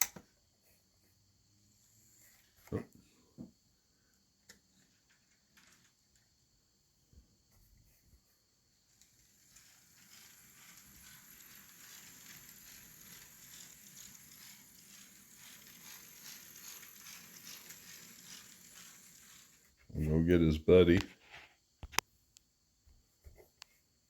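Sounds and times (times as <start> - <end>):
wheels clicking over rails: 4.8 - 6.0, 8.9 - 19.8
model train motor whir: 8.9 - 20.6.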